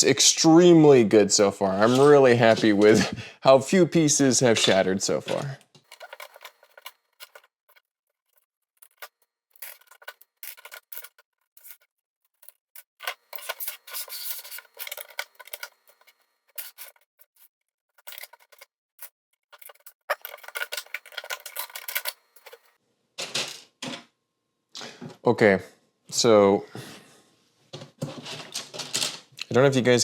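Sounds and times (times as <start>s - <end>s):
plastic scraping on plastic: 1.8s - 3.0s, 4.4s - 23.4s, 27.7s - 29.2s.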